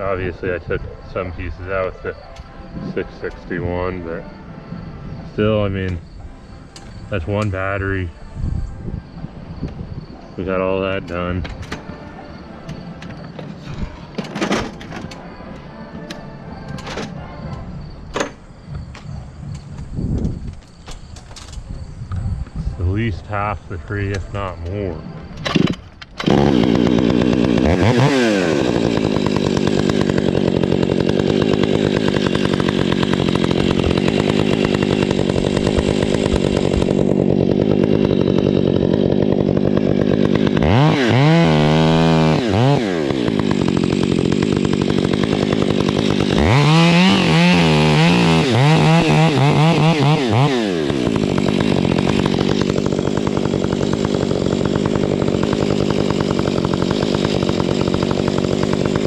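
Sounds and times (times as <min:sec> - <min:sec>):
chainsaw idling and revving: 0:25.4 - 0:59.0.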